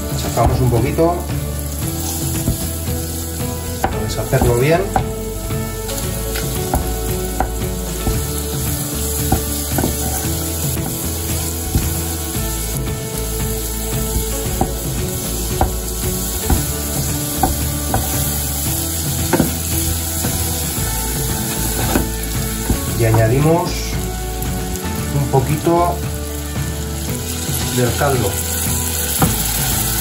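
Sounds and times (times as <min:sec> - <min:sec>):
food sizzling in a saucepan: 0:00.0 - 0:30.0
wooden spoon scraping a pan: 0:01.9 - 0:02.7, 0:09.3 - 0:12.2, 0:21.3 - 0:23.4.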